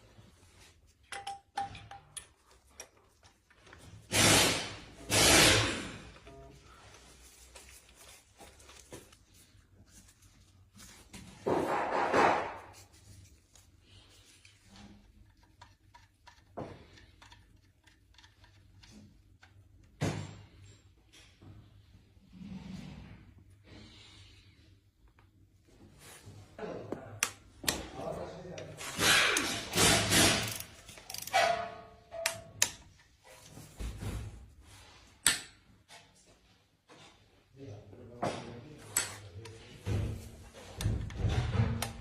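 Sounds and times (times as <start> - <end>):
hard objects clicking and knocking: 1.0 - 5.9, 14.6 - 20.7, 28.6 - 31.6
metallic clicks of hand tools: 1.1 - 3.0, 29.3 - 31.4.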